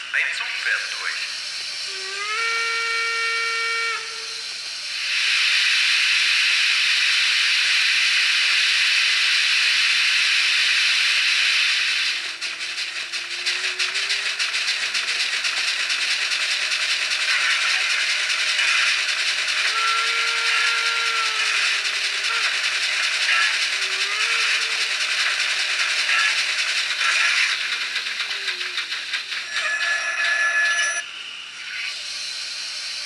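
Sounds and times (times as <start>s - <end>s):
steam hiss: 0.0s - 29.6s, 31.2s - 33.0s
steam exhaust chuffs: 0.0s - 29.9s
train whistle blast: 2.2s - 4.5s, 19.6s - 22.4s.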